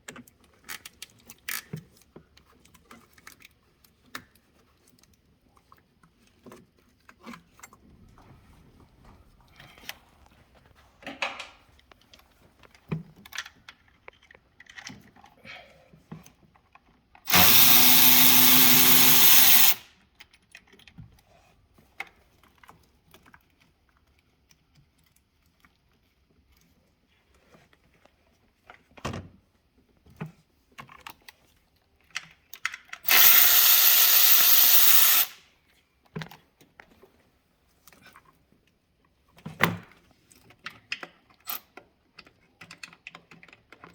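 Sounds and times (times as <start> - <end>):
power tool running: 17.3 - 19.8, 33.1 - 35.4.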